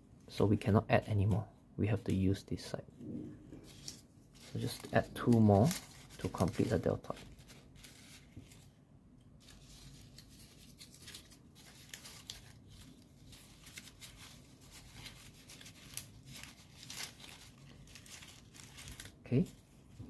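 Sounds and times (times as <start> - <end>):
paper rustling and crinkling: 3.6 - 8.8, 9.4 - 20.0.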